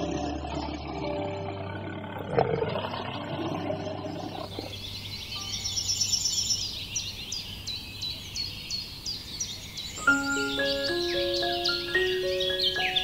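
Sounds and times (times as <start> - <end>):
small birds chirping: 2.8 - 13.0.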